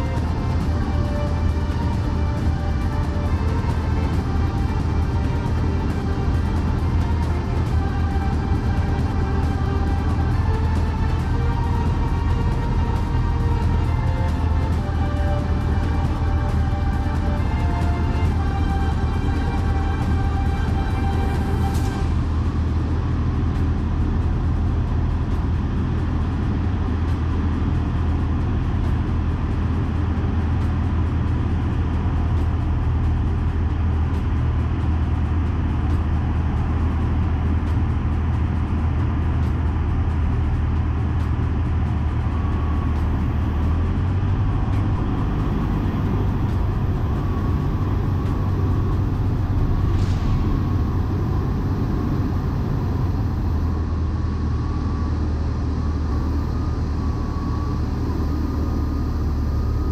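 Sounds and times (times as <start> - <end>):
light aircraft engine droning: 0.0 - 59.9.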